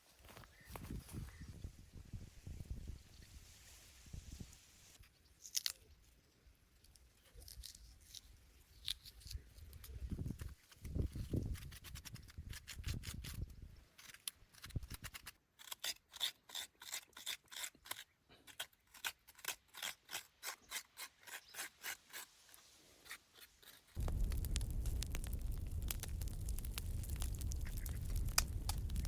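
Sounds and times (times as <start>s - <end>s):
knife scraping: 14.0s - 24.0s.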